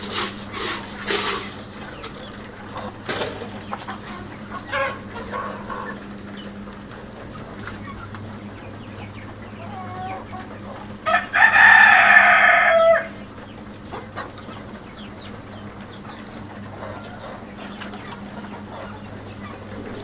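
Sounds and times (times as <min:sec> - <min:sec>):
hen clucking: 0:00.0 - 0:20.0
rooster crowing: 0:11.0 - 0:13.2.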